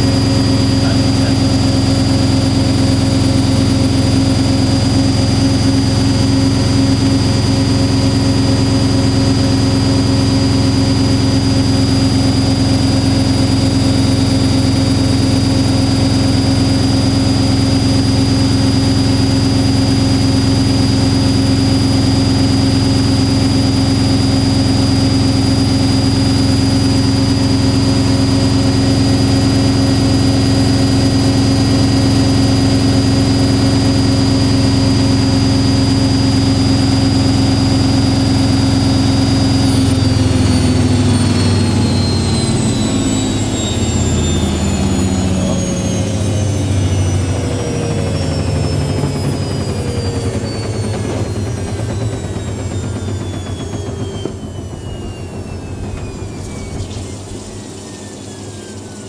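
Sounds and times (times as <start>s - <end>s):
washing machine drum spinning: 46.2s - 58.8s.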